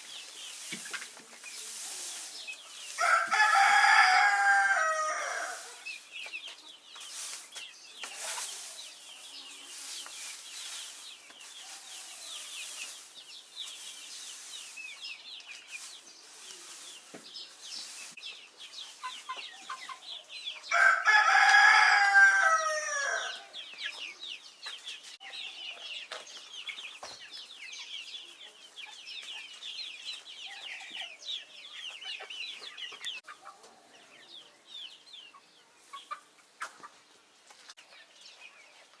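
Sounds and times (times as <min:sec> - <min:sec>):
rustling: 0:00.0 - 0:19.4
chicks peeping: 0:00.0 - 0:39.0
rooster crowing: 0:03.0 - 0:05.7, 0:20.7 - 0:23.4.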